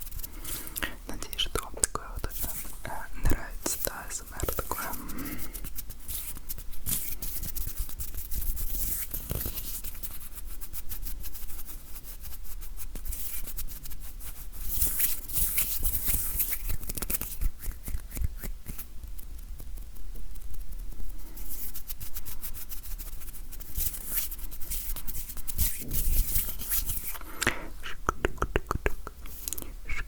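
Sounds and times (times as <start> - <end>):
hands rubbing: 0.0 - 10.7, 13.0 - 18.9, 21.2 - 30.0
fingers clicking and tapping: 27.4 - 29.7.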